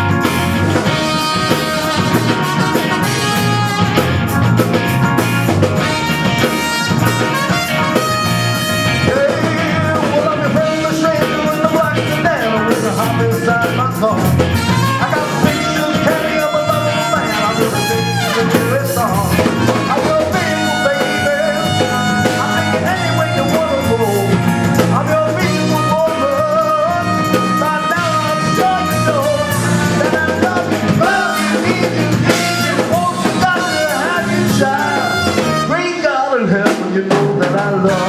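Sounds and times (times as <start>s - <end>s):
live blues-rock band with horns: 0.0s - 38.0s.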